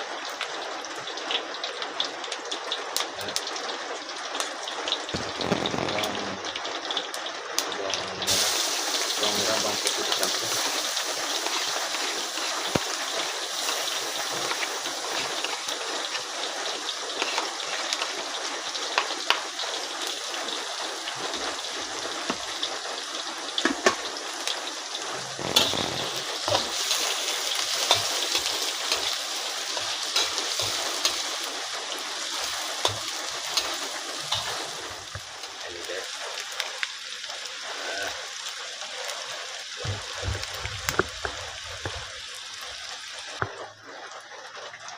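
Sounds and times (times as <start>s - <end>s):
food sizzling in hot oil: 0.0s - 44.9s.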